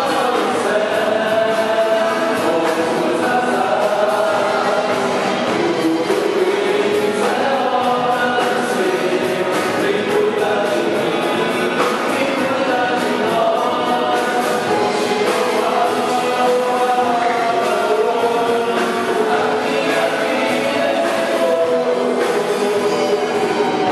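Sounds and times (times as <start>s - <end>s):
gospel choir singing: 0.0s - 23.9s.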